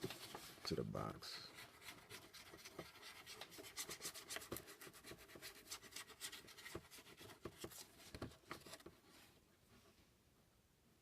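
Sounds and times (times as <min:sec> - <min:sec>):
scratchy strokes on cardboard: 0:01.5 - 0:09.3.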